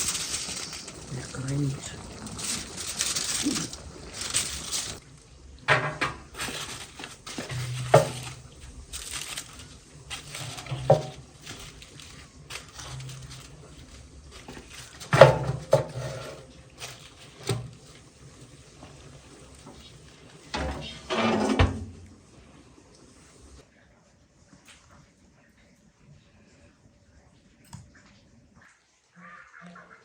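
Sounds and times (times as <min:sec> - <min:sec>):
rustling and scraping: 0:00.0 - 0:05.1, 0:05.7 - 0:22.3
dishes and pots clinking: 0:05.7 - 0:13.5, 0:14.4 - 0:17.8, 0:20.4 - 0:22.1.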